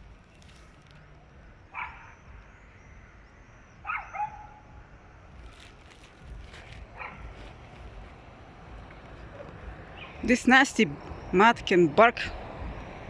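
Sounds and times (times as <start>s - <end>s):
distant dog barking: 1.7s - 2.2s, 3.8s - 4.6s, 7.0s - 7.4s.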